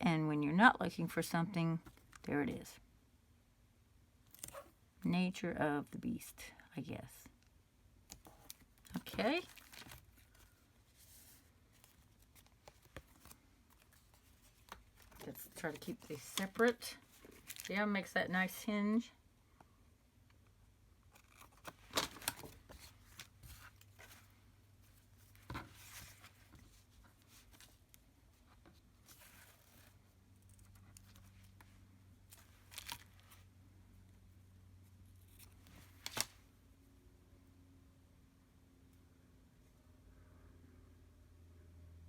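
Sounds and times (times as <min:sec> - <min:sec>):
faint steady hum: 0:00.0 - 0:42.0
crisp paper rustling: 0:08.2 - 0:18.2, 0:21.2 - 0:33.4.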